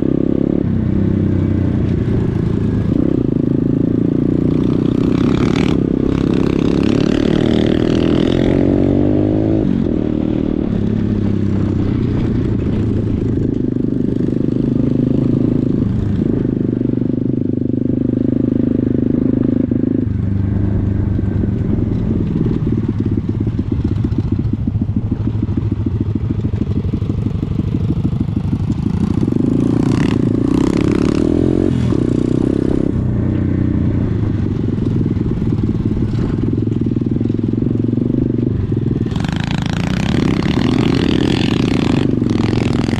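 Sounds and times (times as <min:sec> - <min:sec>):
pit bike engine revving: 0:02.0 - 0:20.0, 0:28.0 - 0:33.0, 0:34.6 - 0:42.9.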